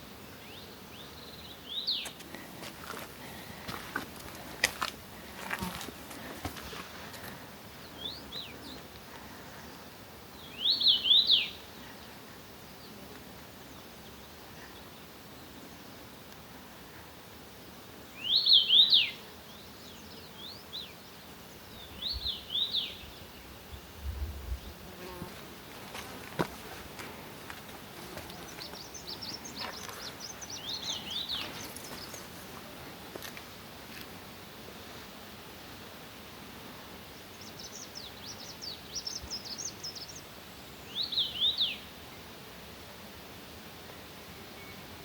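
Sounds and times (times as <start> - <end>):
steady background hiss: 0.0 - 45.0
songbird chirping: 0.4 - 16.1, 18.2 - 33.5, 37.2 - 41.9.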